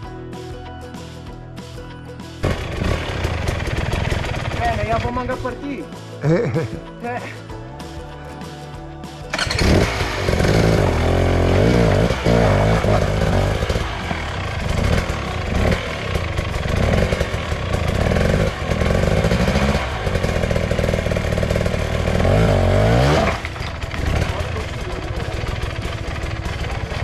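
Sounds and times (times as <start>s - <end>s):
motorcycle engine revving: 2.4s - 5.5s, 9.3s - 27.0s.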